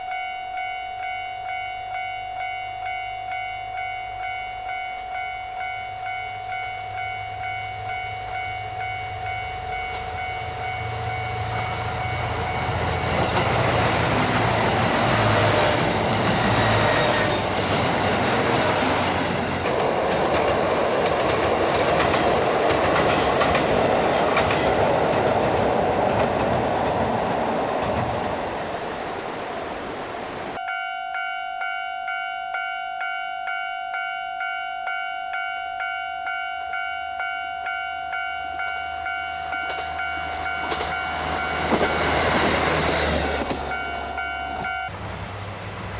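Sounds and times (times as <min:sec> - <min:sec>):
level crossing alarm bell ringing: 0:00.0 - 0:17.1, 0:30.6 - 0:42.2, 0:43.7 - 0:44.9
train passing: 0:00.0 - 0:30.9, 0:35.8 - 0:45.9.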